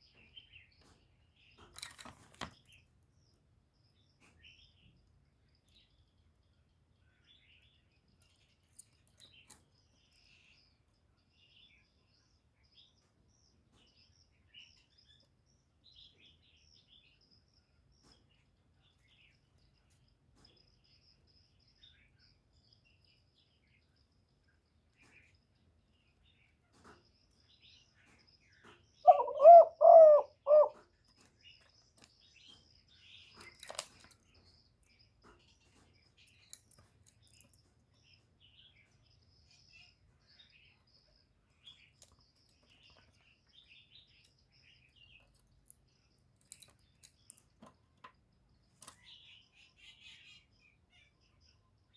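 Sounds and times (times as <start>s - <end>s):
small birds chirping: 0.0s - 51.9s
dove cooing: 29.1s - 30.8s.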